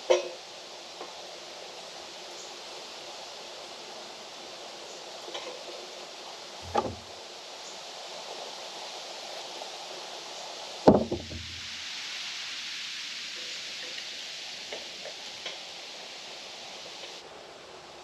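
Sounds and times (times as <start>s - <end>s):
steady background hiss: 0.0s - 18.0s
hard knocks with dull thud: 6.6s - 7.0s, 10.9s - 11.6s.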